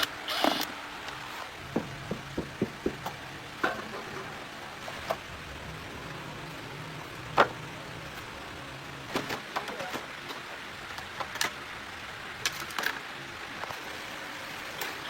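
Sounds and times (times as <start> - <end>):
low steady hum: 0.9 - 12.5
hand tools clicking and knocking: 1.6 - 4.1.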